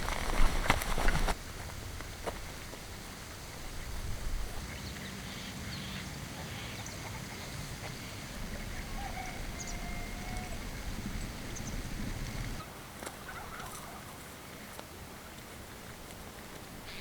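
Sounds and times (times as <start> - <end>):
faint animal calls: 8.0 - 10.8.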